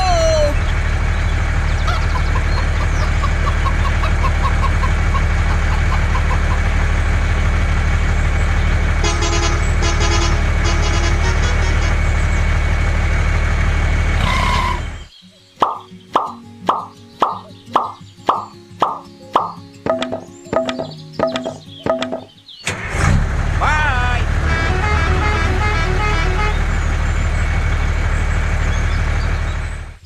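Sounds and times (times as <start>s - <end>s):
truck engine droning: 0.0s - 15.1s, 20.6s - 30.0s
horn tooting: 8.9s - 12.3s, 14.2s - 15.1s, 23.6s - 27.2s.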